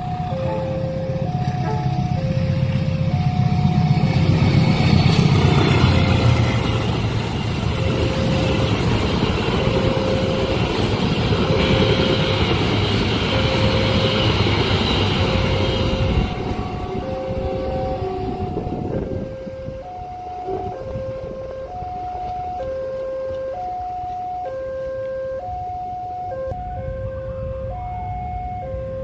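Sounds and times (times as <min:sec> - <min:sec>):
train wheels rumbling on rails: 0:00.0 - 0:24.4
crossing warning bell: 0:00.0 - 0:26.8.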